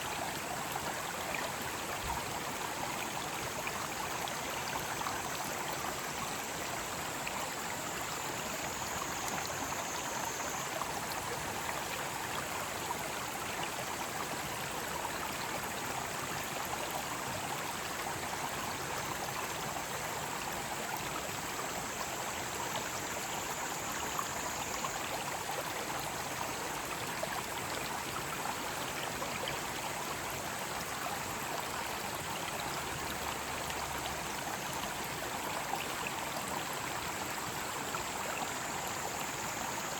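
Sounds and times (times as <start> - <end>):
stream flowing: 0.0 - 39.9
cicadas droning: 3.9 - 11.6, 32.3 - 39.9.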